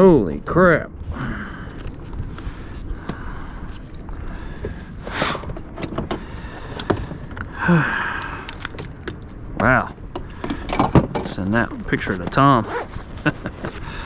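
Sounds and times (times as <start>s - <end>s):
metal fishing tackle jingling: 3.8s - 4.8s.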